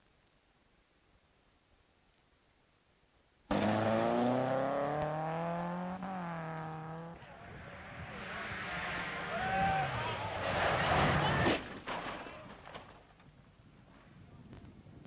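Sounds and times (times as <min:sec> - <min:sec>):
car engine accelerating hard: 0:03.5 - 0:10.3.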